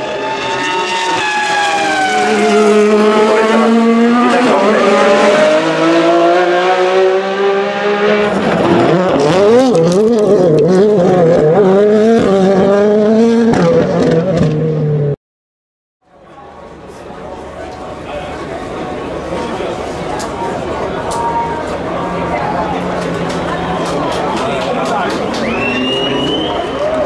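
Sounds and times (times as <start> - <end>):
racing car engines at high revs: 0.0 - 15.2, 21.4 - 27.0.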